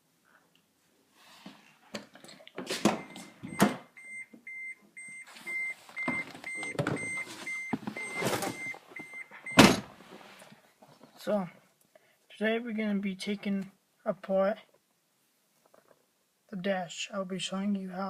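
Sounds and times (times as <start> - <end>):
vehicle warning chime beeping: 3.0 - 9.6.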